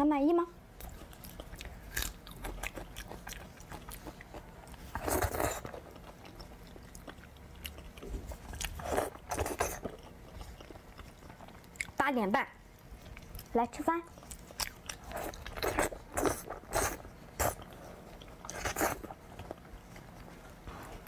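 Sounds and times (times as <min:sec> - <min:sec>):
person biting and chewing meat: 0:00.8 - 0:12.0.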